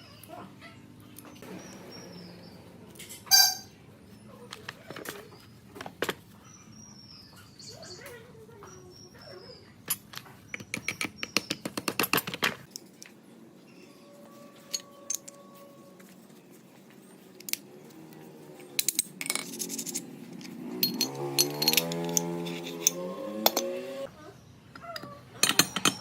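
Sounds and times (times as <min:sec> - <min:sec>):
metal clicks and clinks: 0:14.7 - 0:15.4, 0:18.6 - 0:23.7, 0:24.8 - 0:26.0.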